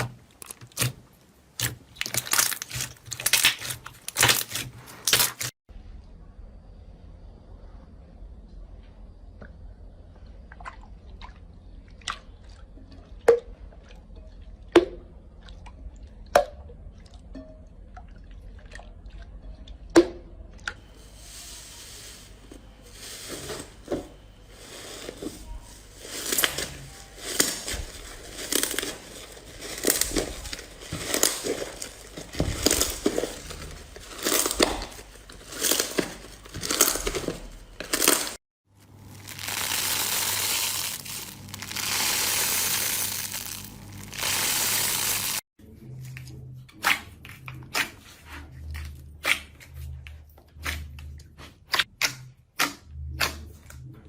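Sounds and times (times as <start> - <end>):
crunchy slime squishes: 0.0 - 5.6, 23.2 - 45.4.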